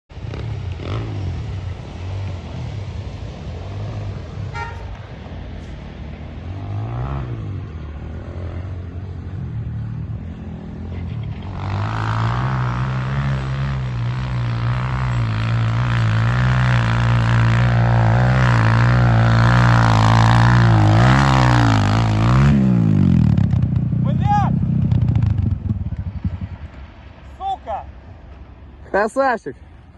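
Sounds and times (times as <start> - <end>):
dirt bike engine revving: 0.1 - 2.2, 6.5 - 9.0, 9.8 - 26.7.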